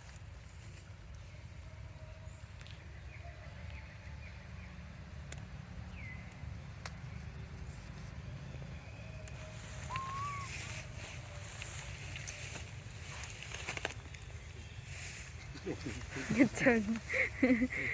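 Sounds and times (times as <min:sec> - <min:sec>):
short high animal calls: 0:09.7 - 0:10.9.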